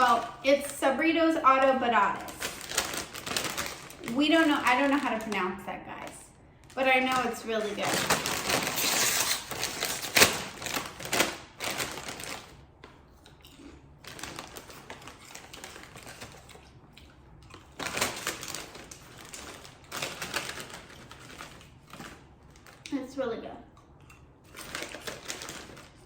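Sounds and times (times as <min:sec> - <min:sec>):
crunching and chewing crisp snack: 0:02.2 - 0:05.2, 0:07.8 - 0:22.9, 0:23.7 - 0:26.0.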